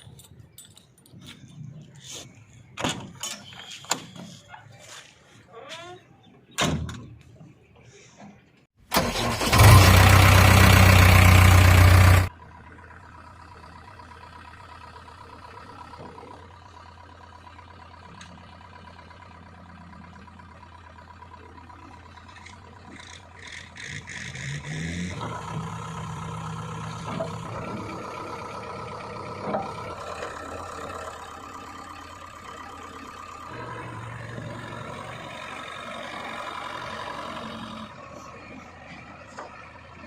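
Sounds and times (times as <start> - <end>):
diesel engine starting: 7.9 - 40.0
diesel engine idling: 8.8 - 40.0
diesel engine revving: 8.8 - 40.0.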